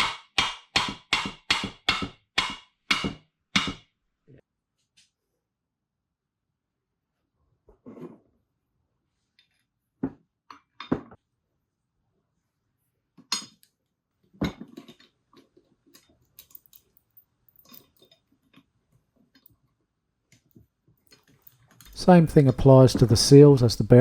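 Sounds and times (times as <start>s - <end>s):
small clicks and rattles: 14.7s - 19.7s, 20.3s - 22.0s.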